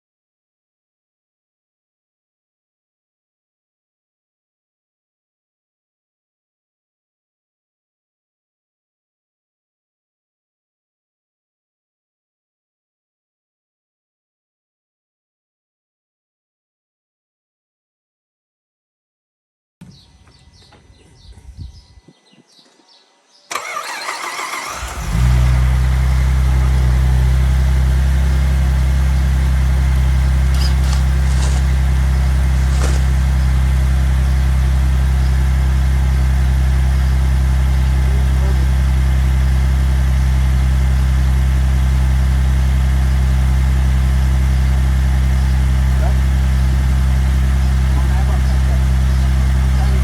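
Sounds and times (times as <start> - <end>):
car engine cranking and idling: 23.5 - 50.0.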